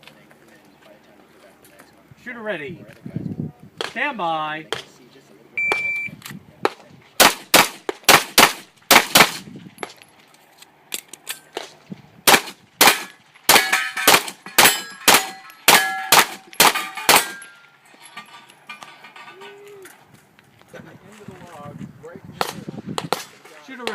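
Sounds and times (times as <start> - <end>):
pistol shots: 7.2 - 9.4, 12.3 - 17.4
steel targets ringing: 13.5 - 19.6.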